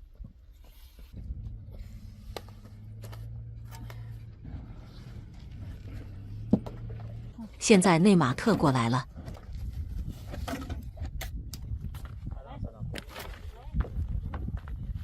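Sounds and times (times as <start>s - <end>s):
engine running low hum: 0.9s - 10.1s.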